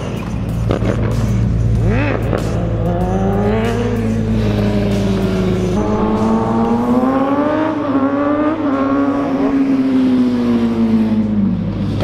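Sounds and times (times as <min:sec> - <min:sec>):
car engine revving: 0:00.1 - 0:12.0.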